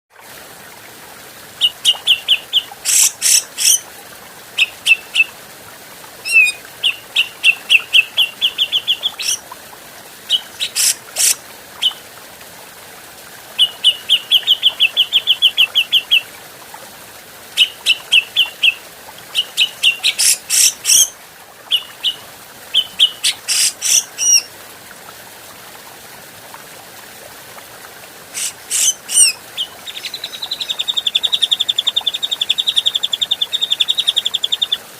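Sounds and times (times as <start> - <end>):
bird chattering song: 1.6 - 3.8, 6.3 - 9.4, 10.3 - 12.0, 19.4 - 21.1, 28.4 - 34.8
sharp bird calls: 1.6 - 3.8, 6.2 - 9.4, 10.3 - 12.0, 19.4 - 21.1, 22.8 - 24.5, 28.4 - 34.8.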